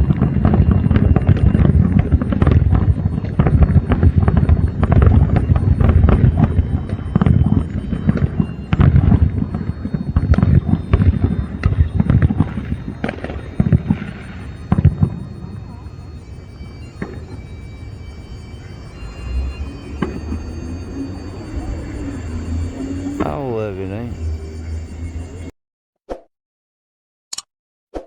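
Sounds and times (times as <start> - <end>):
low rumble: 0.0 - 17.1, 17.8 - 25.5
fireworks bangs and booms: 0.0 - 17.6, 20.0 - 20.5.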